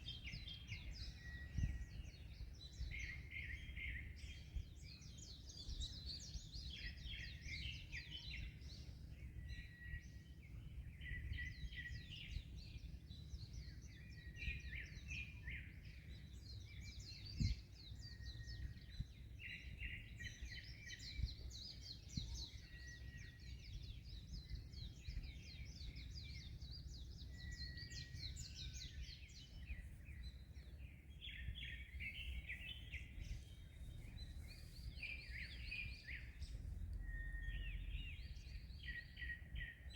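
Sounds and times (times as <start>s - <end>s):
small birds chirping and singing: 0.0s - 39.9s
wind rumble: 28.1s - 39.9s.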